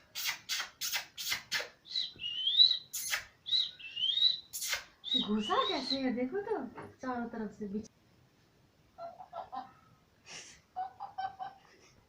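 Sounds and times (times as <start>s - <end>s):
parrot whistled chirps: 0.2s - 6.0s
parrot squawking: 0.2s - 6.1s.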